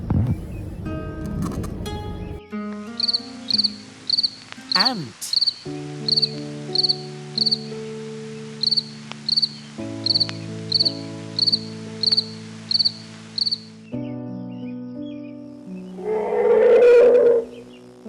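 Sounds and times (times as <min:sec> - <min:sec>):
soft background music chords: 0:00.3 - 0:18.0
cricket chirping: 0:03.0 - 0:13.8.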